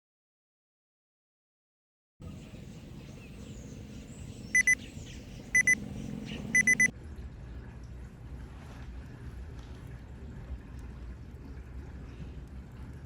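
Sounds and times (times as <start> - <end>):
digital timer double beeps: 4.5 - 4.8, 5.5 - 5.8, 6.5 - 6.9.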